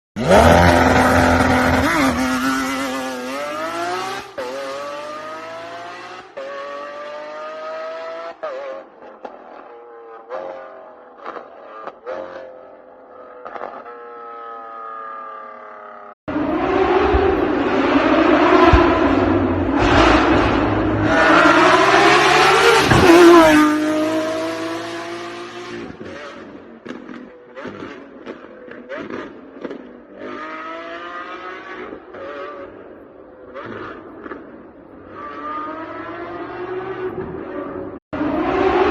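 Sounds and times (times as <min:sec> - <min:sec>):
sports car engine accelerating: 0:00.2 - 0:08.3, 0:16.3 - 0:26.4.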